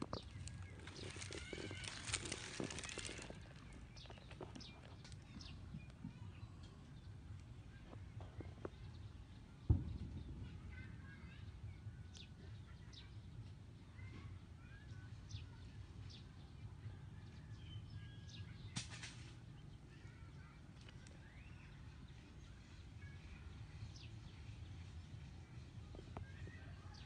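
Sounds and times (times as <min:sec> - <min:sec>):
faint bird chirps: 0:19.6 - 0:24.8.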